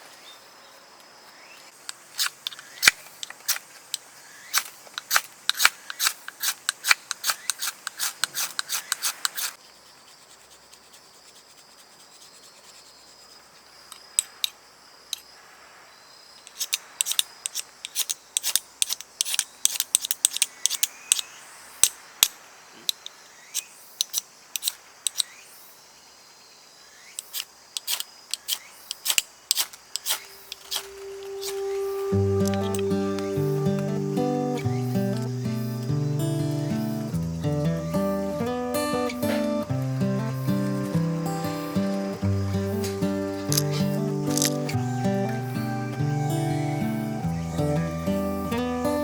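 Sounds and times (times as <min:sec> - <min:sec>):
faint whistles from fire: 0:27.3 - 0:49.0
wood fire crackling: 0:29.1 - 0:49.0.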